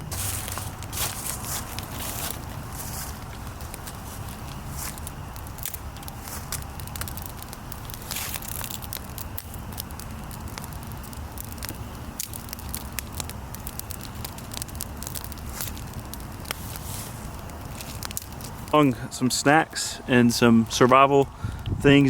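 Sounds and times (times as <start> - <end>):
campfire crackling and popping: 0.0 - 22.0
wind rumble on microphone: 20.6 - 22.0.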